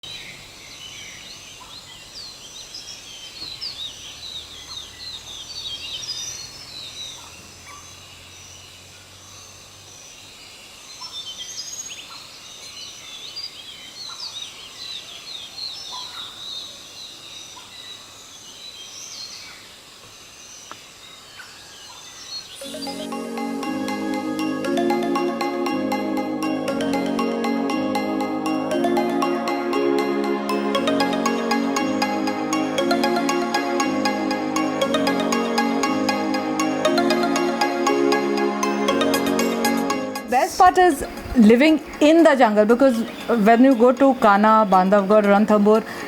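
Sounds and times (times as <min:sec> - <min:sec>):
birds chirping and calling: 0:40.4 - 0:46.0.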